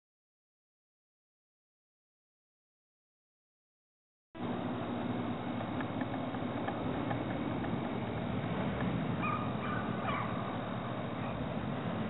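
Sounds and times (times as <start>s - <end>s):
steady low rumble: 4.4s - 12.0s
bird calling: 5.5s - 11.6s.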